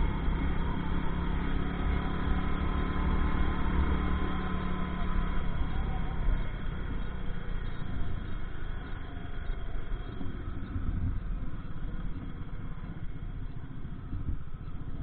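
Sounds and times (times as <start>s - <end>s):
dense low rumble: 0.0s - 15.0s
motorcycle engine running: 0.0s - 15.0s.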